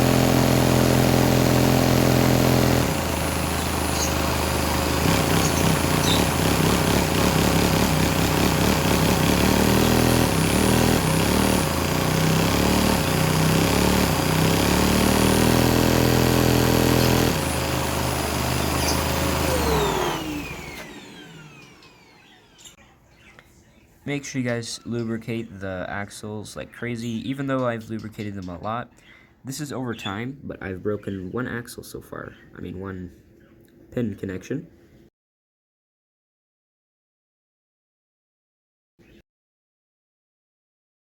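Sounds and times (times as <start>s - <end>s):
model piston engine running: 0.0s - 20.9s
vacuum suction source running: 16.8s - 22.4s.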